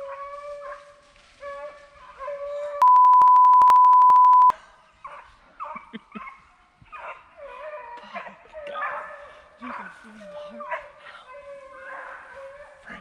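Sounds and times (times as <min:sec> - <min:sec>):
hounds baying and barking: 0:00.0 - 0:13.0
steady bleep tone: 0:02.8 - 0:04.5.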